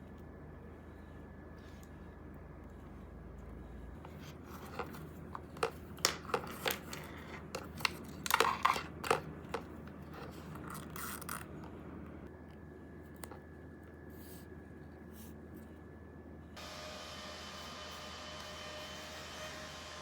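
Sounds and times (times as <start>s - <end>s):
packaging clicking and crinkling: 4.2s - 11.8s.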